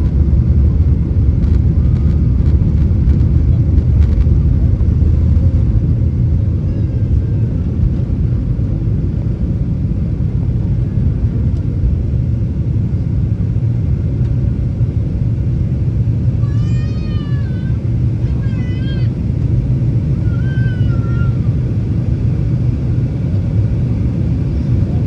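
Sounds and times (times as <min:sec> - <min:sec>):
jet engine cabin rumble: 0:00.0 - 0:25.0
high-pitched cry: 0:16.4 - 0:19.2, 0:20.2 - 0:21.6.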